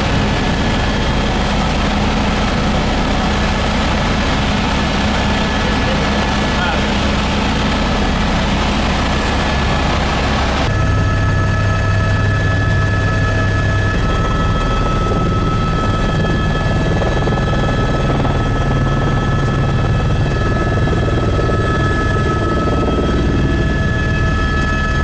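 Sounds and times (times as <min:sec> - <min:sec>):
high whine: 0:00.0 - 0:16.4
helicopter engine and rotor drone: 0:00.0 - 0:25.0.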